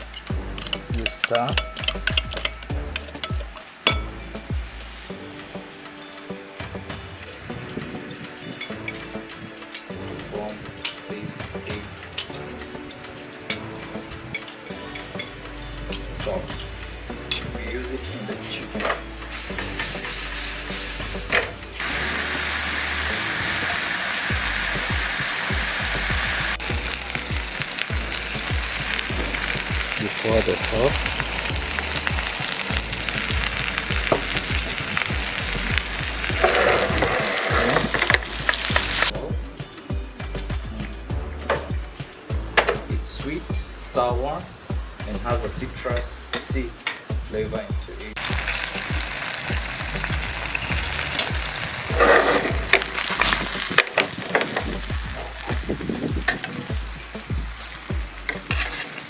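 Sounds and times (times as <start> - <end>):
utensil clicking while stirring: 0.0 - 4.0
background music with steady beat: 0.0 - 59.0
chicken sizzling in a frying pan: 12.2 - 39.1, 48.1 - 59.0.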